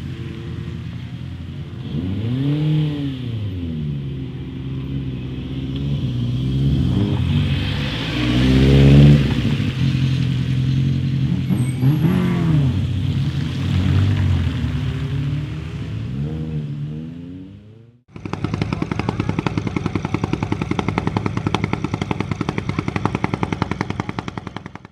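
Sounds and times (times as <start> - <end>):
rally car engine revving: 1.6 - 4.4, 5.9 - 24.9
car accelerating hard: 6.0 - 19.2.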